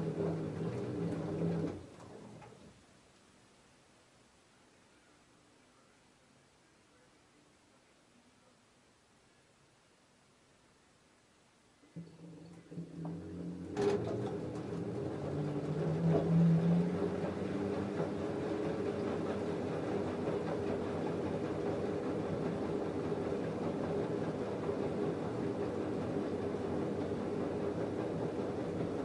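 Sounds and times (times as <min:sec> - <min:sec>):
washing machine humming: 0:00.0 - 0:03.0, 0:11.8 - 0:29.0.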